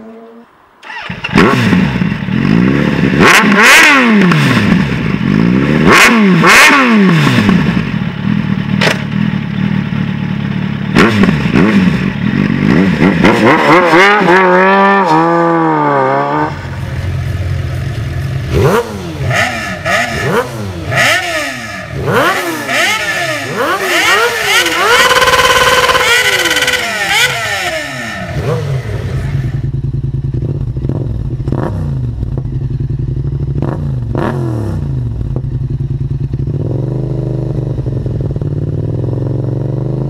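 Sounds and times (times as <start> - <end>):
motorcycle engine revving: 0.0 - 40.0
motorcycle idling: 7.4 - 13.1, 16.5 - 40.0.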